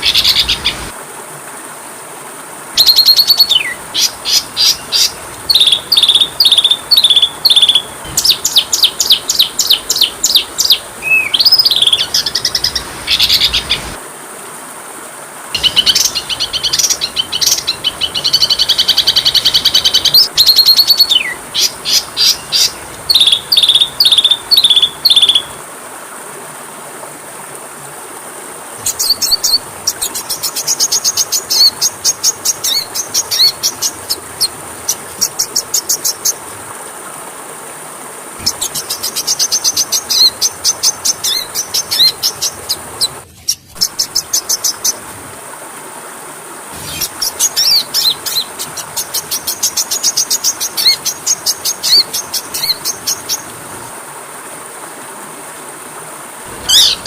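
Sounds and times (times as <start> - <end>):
bird singing trills and whistles: 2.8 - 13.8, 15.6 - 25.5, 56.7 - 57.0.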